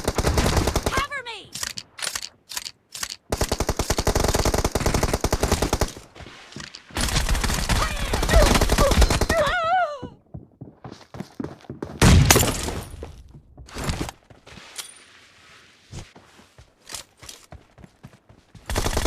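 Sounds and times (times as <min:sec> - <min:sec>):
video game automatic gunfire: 0:03.3 - 0:06.0, 0:07.0 - 0:09.5, 0:18.7 - 0:19.0.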